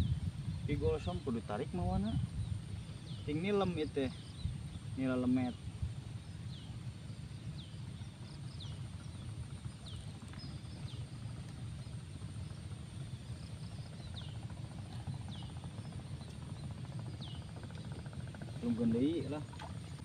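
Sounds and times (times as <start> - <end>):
steady low rumble: 0.0 - 20.0
bird chirping: 13.5 - 19.5.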